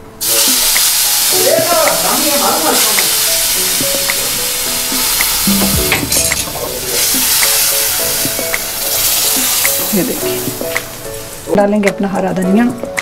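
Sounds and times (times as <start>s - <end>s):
hot oil sizzling: 0.0s - 12.9s.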